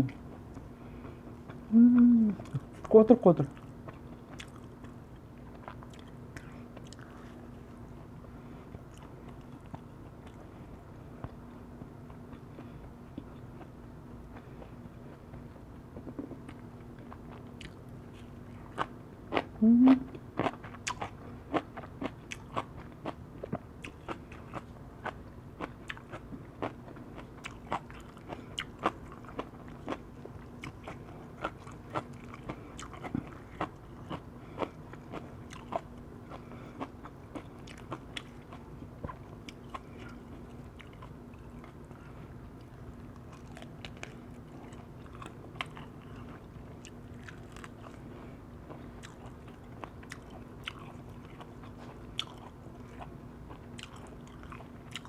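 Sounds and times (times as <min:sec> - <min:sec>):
faint steady hum: 0:00.0 - 0:55.0
wet crunchy chewing: 0:48.8 - 0:55.0.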